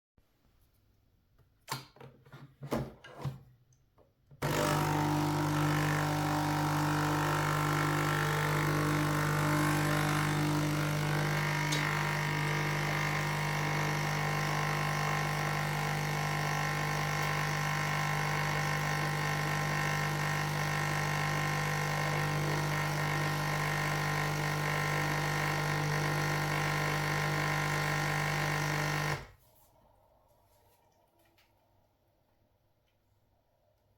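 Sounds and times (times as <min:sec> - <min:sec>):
coffee machine pump buzzing: 0:04.4 - 0:29.4.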